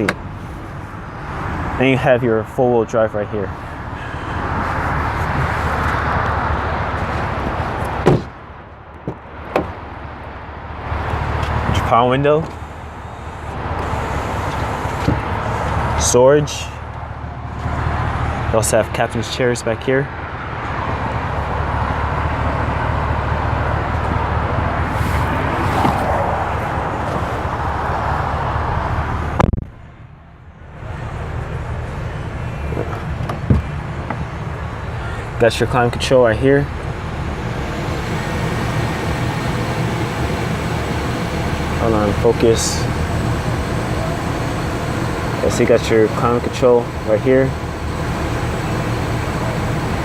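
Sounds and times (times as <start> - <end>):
outside noise: 0.0 - 50.0
traffic noise: 0.0 - 50.0
car door shutting thud: 8.0 - 8.4, 9.0 - 9.8, 32.8 - 34.2.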